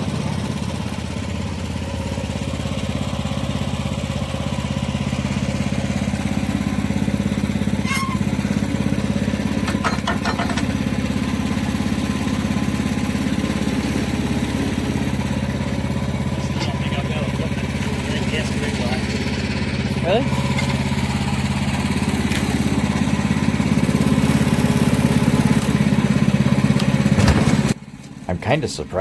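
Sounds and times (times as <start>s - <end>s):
sawmill engine running: 0.0s - 29.0s
clanks: 7.6s - 11.4s, 15.8s - 23.2s, 25.3s - 28.3s.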